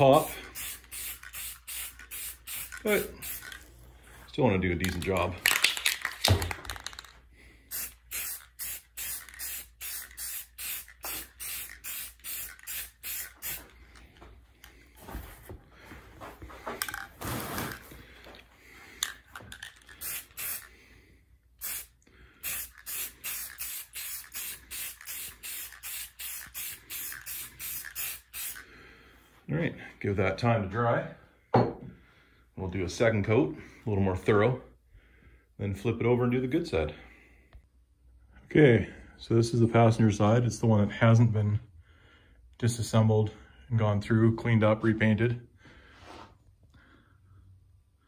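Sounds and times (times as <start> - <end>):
spray paint can spritzing: 0.2 - 3.8, 4.8 - 7.1, 7.7 - 13.8, 19.5 - 20.7, 21.6 - 28.6.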